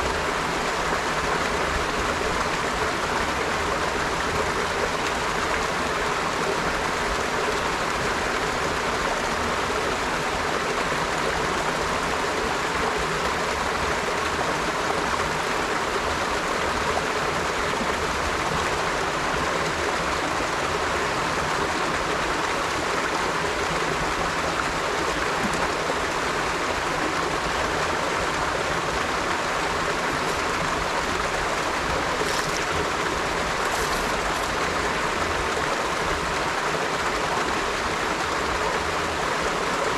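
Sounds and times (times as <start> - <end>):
river water flowing: 0.0 - 39.9
water trickling and splashing: 24.7 - 39.2.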